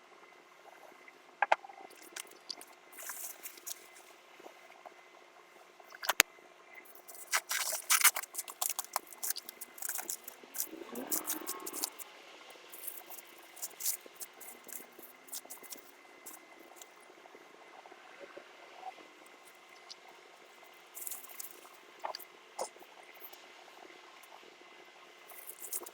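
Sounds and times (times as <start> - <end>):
packaging crinkling: 2.0 - 4.0, 6.9 - 12.0, 12.8 - 16.9.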